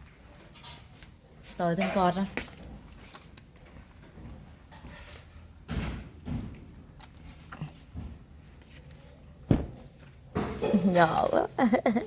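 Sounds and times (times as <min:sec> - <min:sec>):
dull knocks and thuds: 0:09.5 - 0:09.8.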